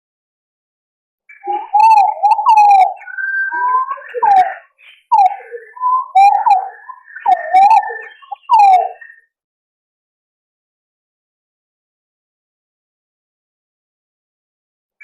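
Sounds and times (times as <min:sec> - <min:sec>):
pigeons warbling whistles: 0:01.3 - 0:09.2.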